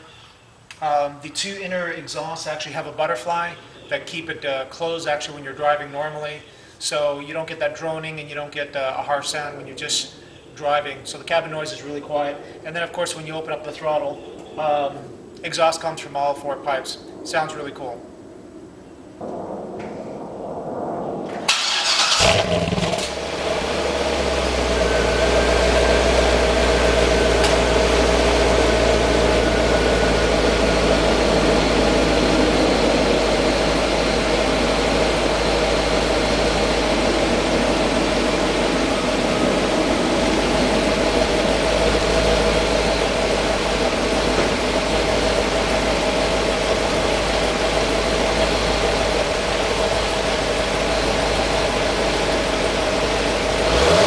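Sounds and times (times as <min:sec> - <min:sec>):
car engine cranking and idling: 0:21.5 - 0:54.0.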